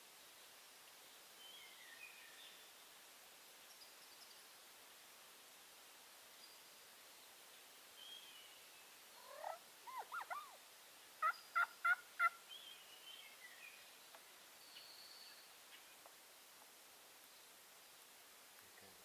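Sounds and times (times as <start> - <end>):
faint songbird chirps: 0.2 - 3.0, 3.6 - 4.8, 6.1 - 16.6
wild turkey calling: 9.2 - 10.6, 11.2 - 12.8.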